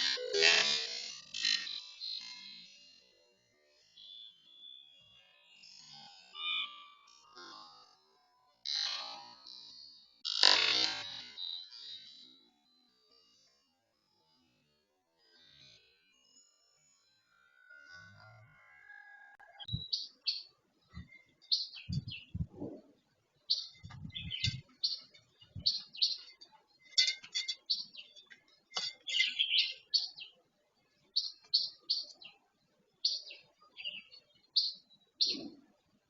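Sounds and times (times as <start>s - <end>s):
bird chirping calls: 19.4s - 32.4s, 33.0s - 35.7s.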